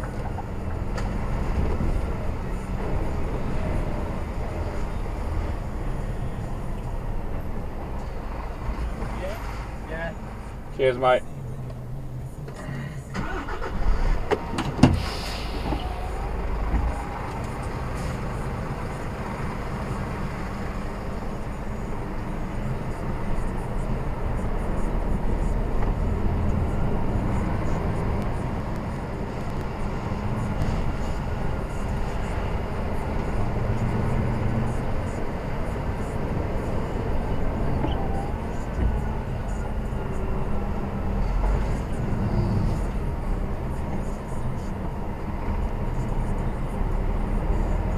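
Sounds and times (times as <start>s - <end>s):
road noise: 0.0s - 47.9s
lorry engine running: 11.3s - 47.9s.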